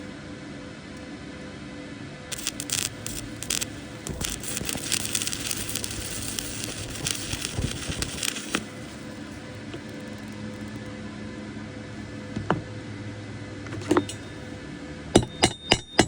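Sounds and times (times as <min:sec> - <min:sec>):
steady low hum: 0:00.0 - 0:16.0
arc welding crackle: 0:02.3 - 0:11.0.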